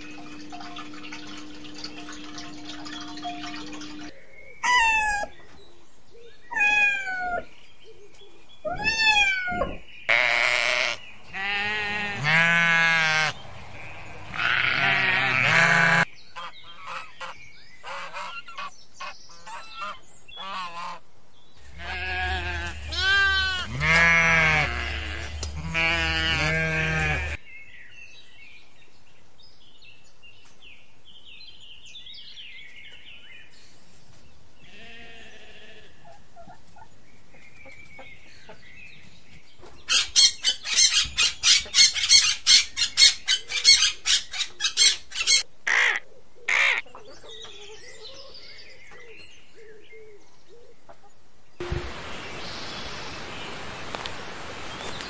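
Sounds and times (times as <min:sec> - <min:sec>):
loud bird honks: 0:10.1 - 0:13.4, 0:21.7 - 0:27.4, 0:45.3 - 0:46.8.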